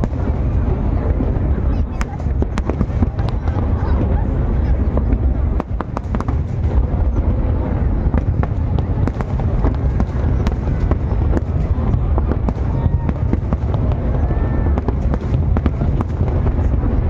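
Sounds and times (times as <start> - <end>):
fireworks crackling pops: 0.0 - 0.7, 4.9 - 7.2, 8.0 - 17.0.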